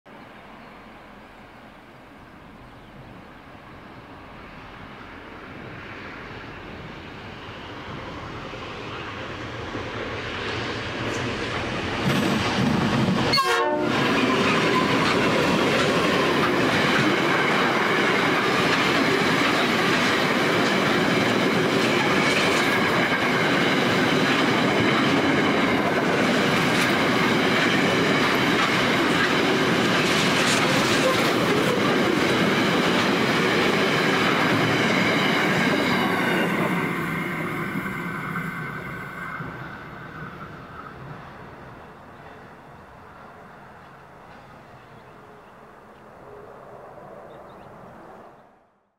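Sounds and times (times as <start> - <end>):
diesel locomotives passing: 0.1 - 48.8
wagons clattering over rails: 14.0 - 36.9.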